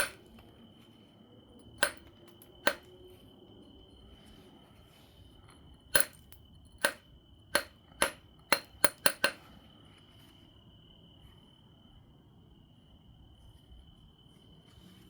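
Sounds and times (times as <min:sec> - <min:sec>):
billet knocking on stone: 0:00.0 - 0:00.3, 0:01.7 - 0:02.9, 0:05.9 - 0:07.0, 0:07.6 - 0:09.5.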